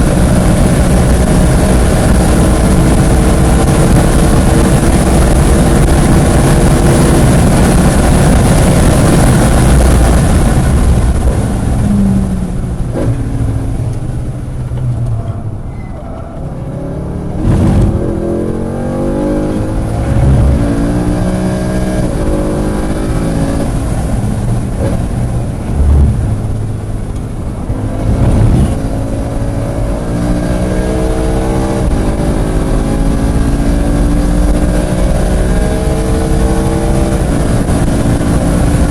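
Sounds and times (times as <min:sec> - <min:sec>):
race car engine revving: 0:16.2 - 0:38.9.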